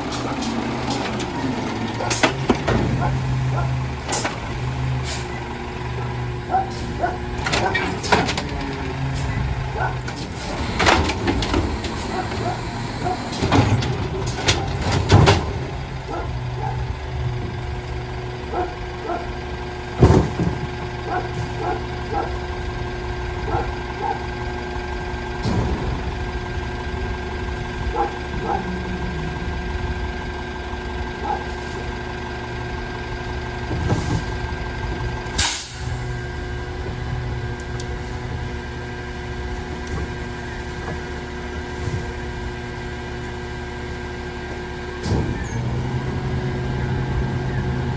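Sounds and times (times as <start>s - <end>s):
garbage truck engine running: 0.0s - 47.9s
whine over engine hum: 25.5s - 31.9s.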